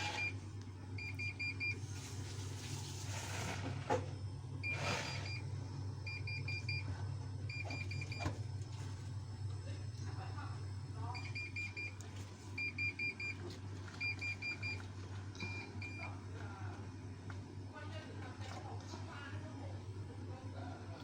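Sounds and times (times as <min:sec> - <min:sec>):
washing machine short high beeps: 0:00.0 - 0:00.4, 0:01.0 - 0:08.5, 0:11.1 - 0:12.0, 0:12.6 - 0:14.8, 0:15.4 - 0:16.2.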